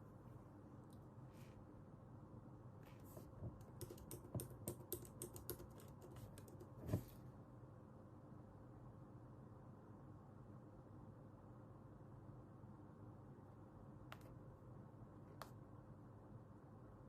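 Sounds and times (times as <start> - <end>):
faint room hiss: 0.0 - 17.0
computer keyboard key clicks: 3.6 - 6.8.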